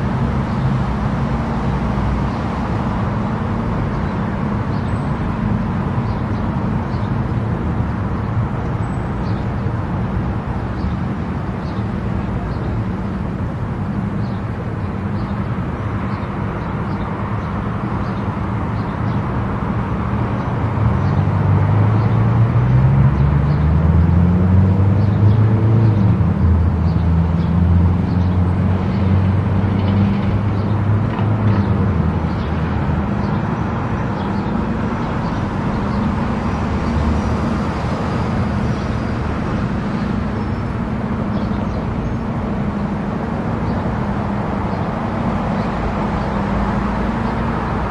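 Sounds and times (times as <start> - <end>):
low engine drone: 0.0 - 47.9
tyre and road noise: 0.0 - 47.9.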